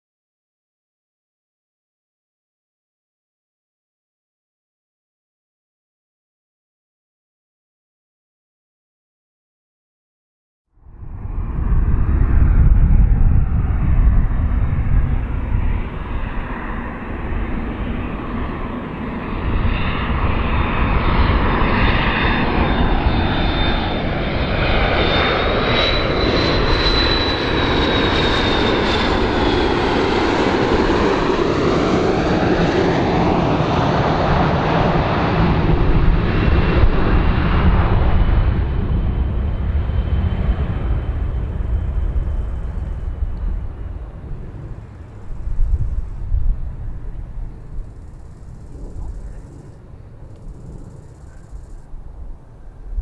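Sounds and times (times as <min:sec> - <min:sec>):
airplane flying past: 0:10.8 - 0:53.0.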